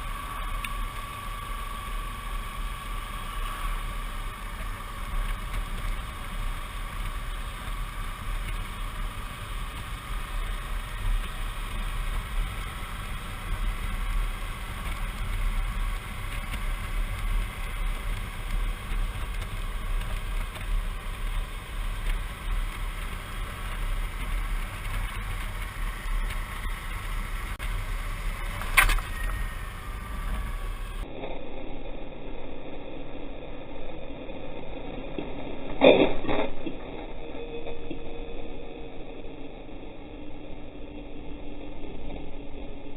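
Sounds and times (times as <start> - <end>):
wind and road noise: 0.0 - 31.2
motorcycle engine running: 0.0 - 35.8
sharp click: 28.6 - 29.3.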